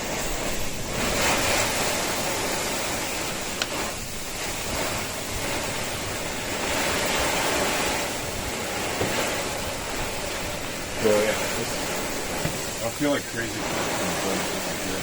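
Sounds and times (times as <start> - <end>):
steady rushing noise: 0.0 - 15.0
sharp tick: 3.6 - 3.8.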